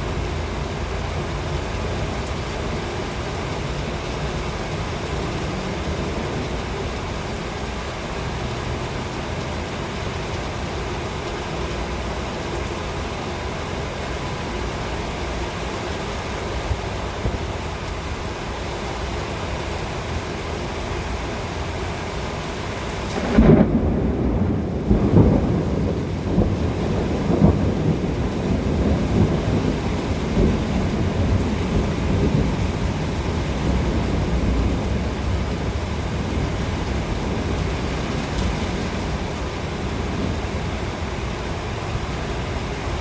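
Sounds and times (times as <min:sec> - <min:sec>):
low rumble of thunder: 0:00.0 - 0:13.5, 0:23.0 - 0:43.0
steady rain: 0:00.0 - 0:43.0.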